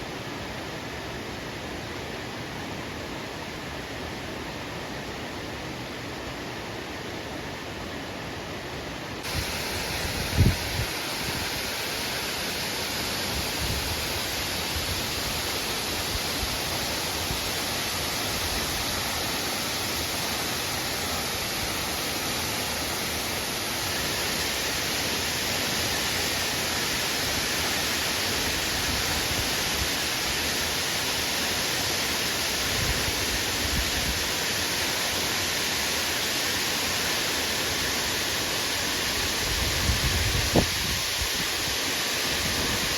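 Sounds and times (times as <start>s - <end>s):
waterfall rushing: 9.2s - 42.9s.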